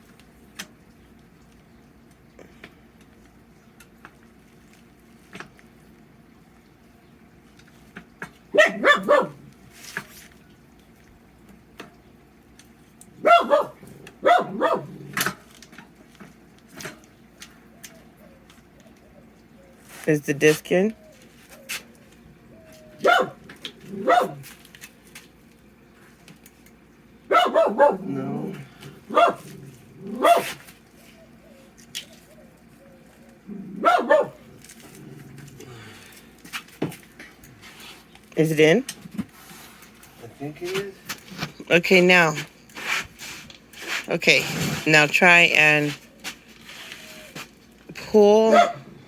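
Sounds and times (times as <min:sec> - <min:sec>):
dog barking: 0:08.5 - 0:09.4, 0:13.2 - 0:15.0, 0:23.0 - 0:24.4, 0:27.3 - 0:28.2, 0:29.1 - 0:29.5, 0:30.1 - 0:30.6, 0:33.8 - 0:34.4, 0:48.5 - 0:48.9.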